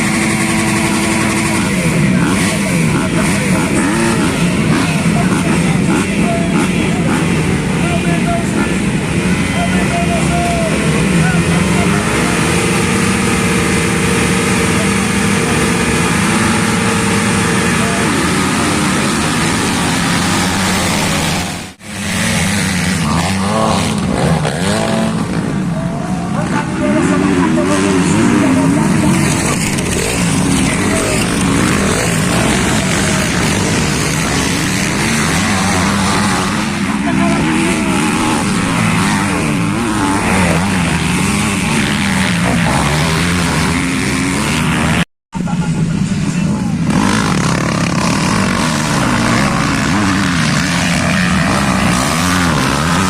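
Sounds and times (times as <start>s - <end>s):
engine revving up: 0.0s - 45.1s, 46.8s - 53.0s
motocross bike engines running: 0.0s - 53.0s.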